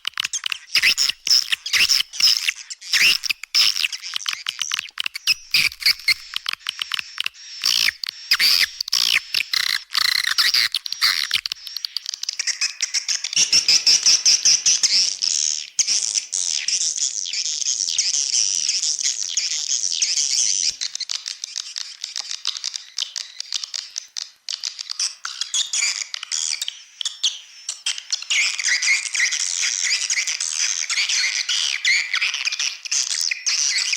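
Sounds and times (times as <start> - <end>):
swiftlets chirping and twittering: 0.2 - 18.2.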